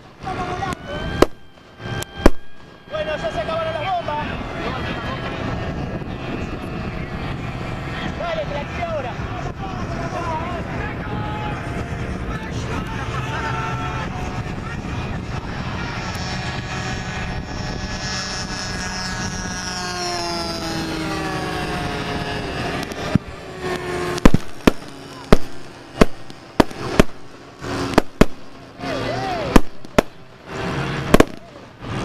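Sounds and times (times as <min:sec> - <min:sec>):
model airplane engines droning: 0:00.0 - 0:32.0
firecracker bangs: 0:02.2 - 0:02.6, 0:24.2 - 0:28.6, 0:29.5 - 0:30.2, 0:31.1 - 0:31.4.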